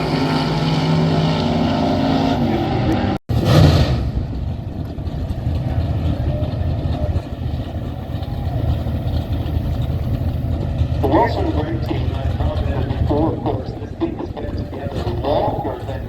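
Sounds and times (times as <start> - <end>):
car engine idling: 4.1 - 16.0.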